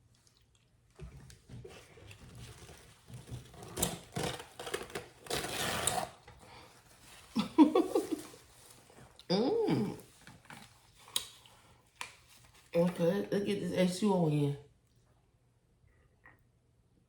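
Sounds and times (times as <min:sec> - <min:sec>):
rustling scrape: 0:01.6 - 0:09.2
person humming or grunting: 0:09.3 - 0:10.0.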